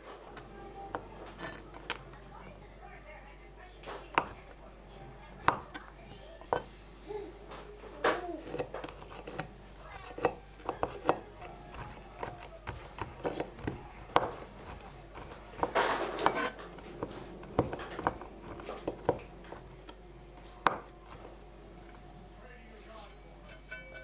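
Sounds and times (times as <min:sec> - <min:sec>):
utensils and pots clinking: 0:00.0 - 0:02.3, 0:05.5 - 0:21.2, 0:22.9 - 0:24.0.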